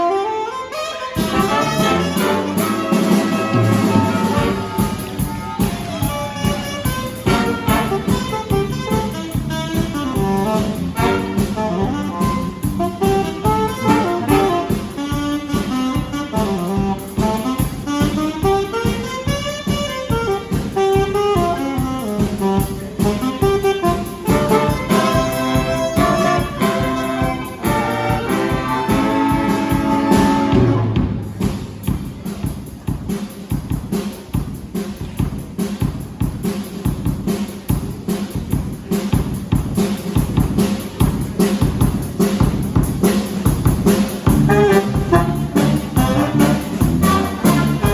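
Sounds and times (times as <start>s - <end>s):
saxophones and brass playing: 0.0s - 31.5s, 43.8s - 47.9s
horn chords: 0.0s - 31.8s, 43.9s - 47.9s
bass: 1.2s - 47.9s
steady beat: 1.2s - 47.9s.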